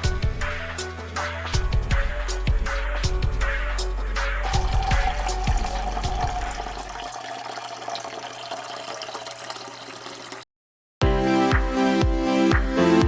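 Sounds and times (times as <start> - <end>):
background music: 0.0 - 6.9, 11.0 - 13.0
liquid pouring and fizzing: 4.4 - 10.5.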